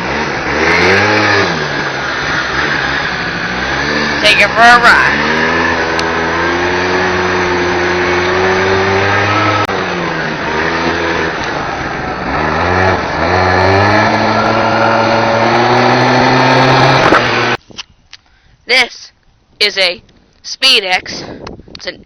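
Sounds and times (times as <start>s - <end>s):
small two-stroke engine revving: 0.0s - 17.6s.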